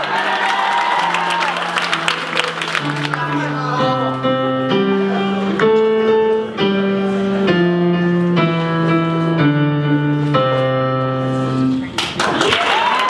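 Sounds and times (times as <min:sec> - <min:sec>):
guitar playing held chords: 0:01.0 - 0:11.9.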